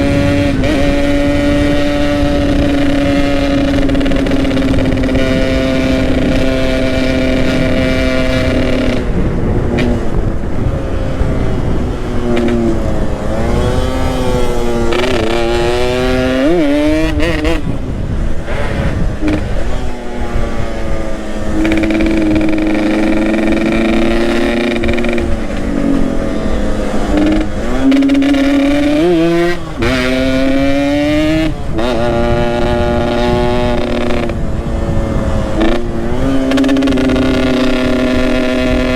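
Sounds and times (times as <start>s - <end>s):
two-stroke motorcycle engine revving: 0.0s - 38.9s
wind rushing: 0.0s - 38.9s.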